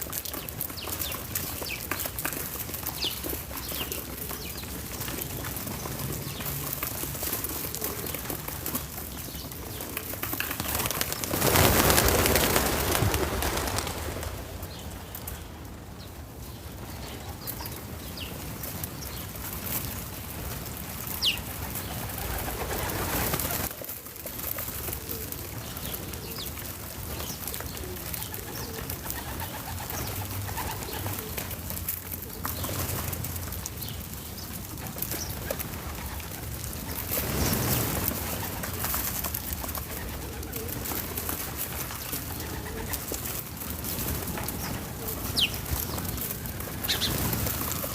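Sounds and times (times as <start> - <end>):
steady outdoor hiss: 0.0 - 47.9
bird calls: 25.0 - 31.5, 44.1 - 47.9.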